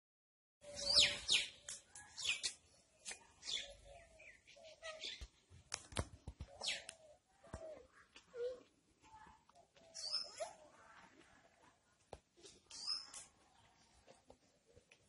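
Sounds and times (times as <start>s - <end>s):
birds chirping: 0.6s - 5.5s, 6.4s - 8.2s, 9.2s - 11.0s, 12.4s - 14.0s.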